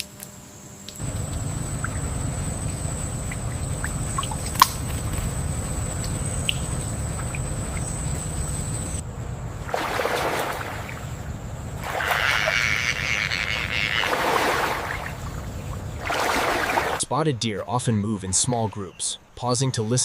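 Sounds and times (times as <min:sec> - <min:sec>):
steady high whine: 0:00.0 - 0:16.8
low rumble: 0:01.0 - 0:14.0
rushing lapping water: 0:01.0 - 0:17.0.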